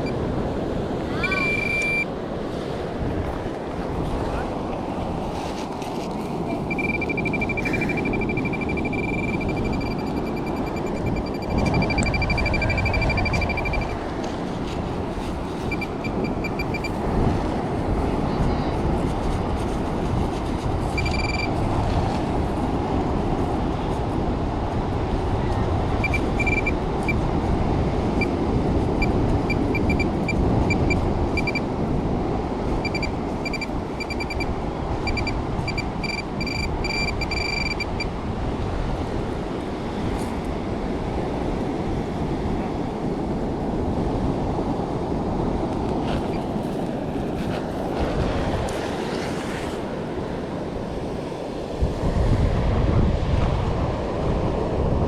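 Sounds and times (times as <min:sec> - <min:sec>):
metal detector beeping: 0:00.0 - 0:00.2, 0:01.1 - 0:02.1, 0:06.6 - 0:14.0, 0:15.2 - 0:17.0, 0:20.9 - 0:21.6, 0:26.0 - 0:27.3, 0:28.2 - 0:31.7, 0:32.7 - 0:38.2
surf: 0:00.0 - 0:55.0
wind on microphone: 0:00.0 - 0:55.0.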